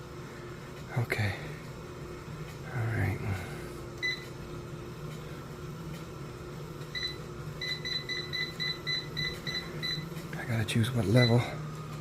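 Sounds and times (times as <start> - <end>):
exercise bike console beeps: 4.0 - 4.3, 6.9 - 10.2, 11.0 - 11.5.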